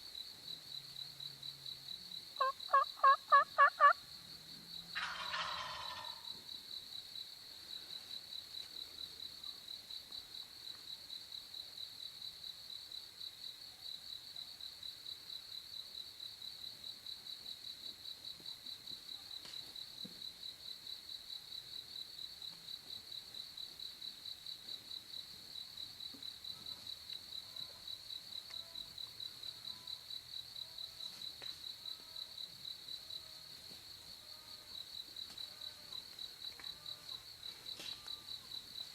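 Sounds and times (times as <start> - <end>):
turkey gobble: 2.4 - 4.0, 5.0 - 6.3
insect trilling: 2.4 - 4.1.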